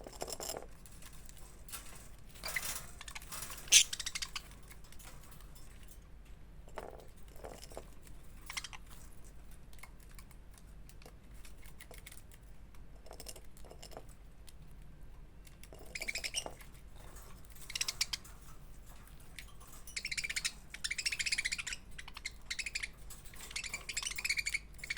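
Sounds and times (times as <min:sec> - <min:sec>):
budgerigars chirping: 0:03.6 - 0:04.5, 0:15.9 - 0:16.5, 0:17.6 - 0:18.3, 0:19.9 - 0:24.9.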